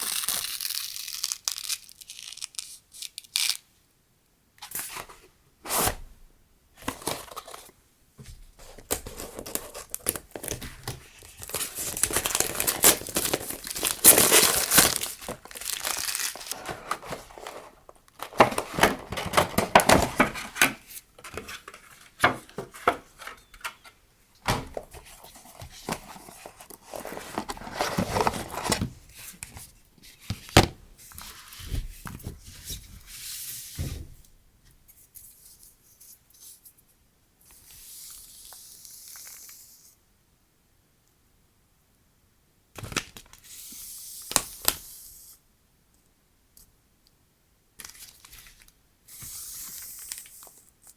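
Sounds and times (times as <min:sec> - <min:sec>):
packaging crinkling and tearing: 0:00.0 - 0:03.6, 0:08.7 - 0:22.1, 0:24.7 - 0:28.9.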